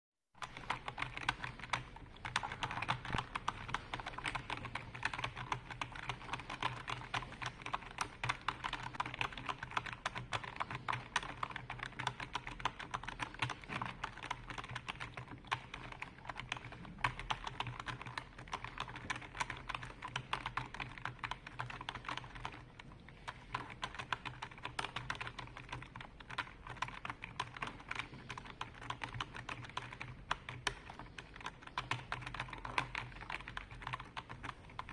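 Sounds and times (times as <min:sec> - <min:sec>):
fast typing on computer keyboard: 0:00.4 - 0:34.9.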